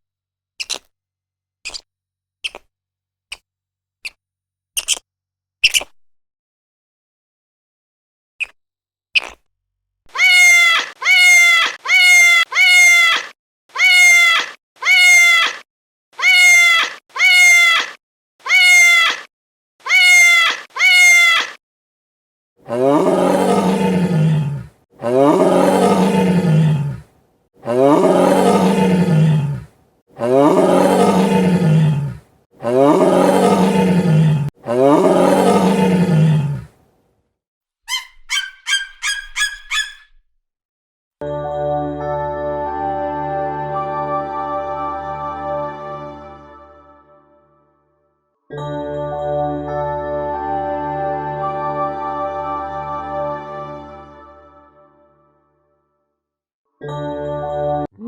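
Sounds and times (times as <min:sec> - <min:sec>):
wild cat roaring: 0:22.6 - 0:36.8.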